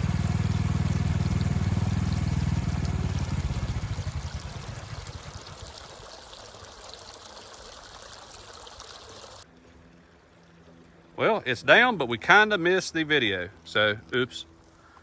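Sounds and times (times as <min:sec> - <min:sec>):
heavy machine engine running: 0:00.0 - 0:05.5.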